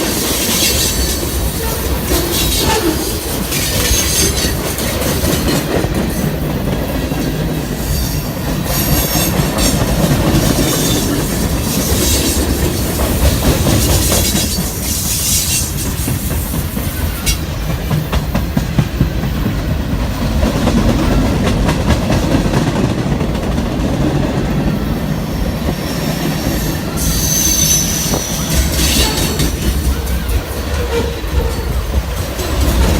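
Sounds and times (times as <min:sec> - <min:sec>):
train wheels rumbling over rails: 0:00.0 - 0:32.9
high wheel squeal: 0:25.3 - 0:31.8.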